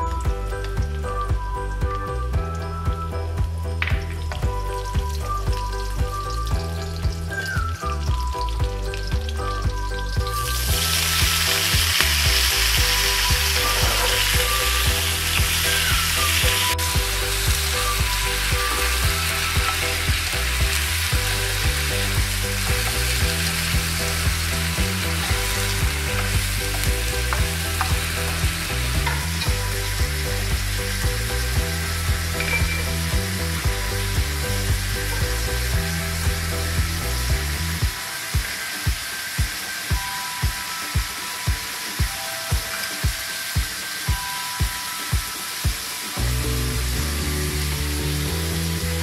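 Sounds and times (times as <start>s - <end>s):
food sizzling in hot oil: 2.8s - 49.0s
spatula stir-frying greens: 8.4s - 42.0s.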